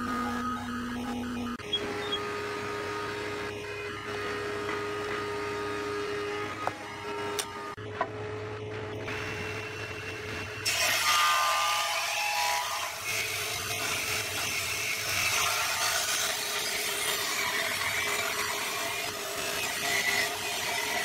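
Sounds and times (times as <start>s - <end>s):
table saw blade humming: 0.0s - 7.8s
saw ripping through wood block: 10.6s - 21.0s.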